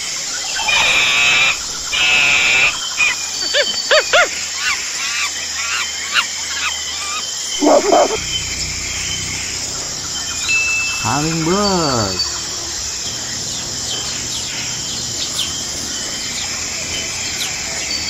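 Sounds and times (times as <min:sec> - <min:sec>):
animal chirping and hooting calls: 0:00.5 - 0:13.0
animal chattering: 0:07.6 - 0:08.2.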